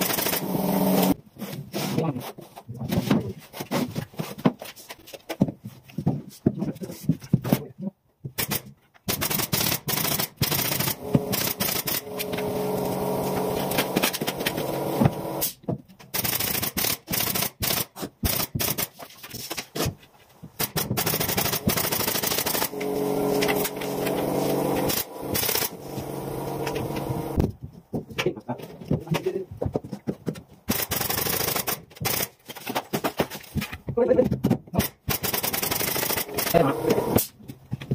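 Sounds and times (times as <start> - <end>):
power tool motor running: 0.0 - 1.2, 10.6 - 15.6, 21.1 - 27.4, 35.4 - 37.3.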